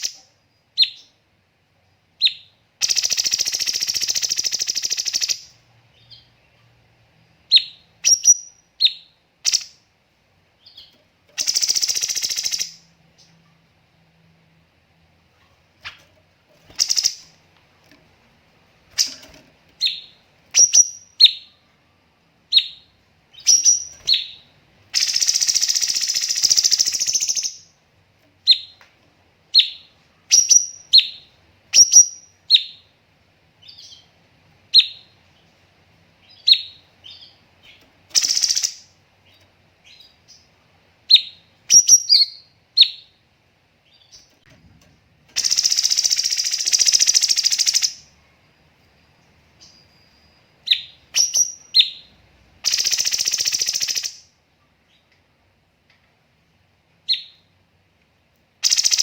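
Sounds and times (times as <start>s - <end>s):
songbird calling: 10.6s - 13.3s, 16.7s - 17.4s, 18.9s - 21.6s, 22.5s - 27.7s, 36.2s - 38.9s.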